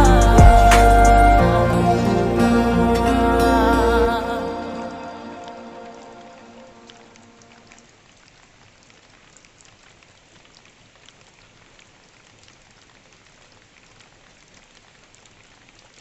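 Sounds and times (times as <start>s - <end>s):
raindrops ticking: 6.8s - 16.0s.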